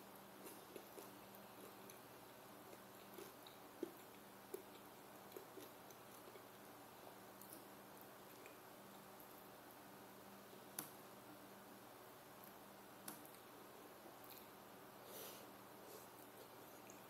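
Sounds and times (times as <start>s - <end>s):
faint low hum: 0.0s - 17.0s
person chewing with mouth clicks: 0.4s - 6.5s.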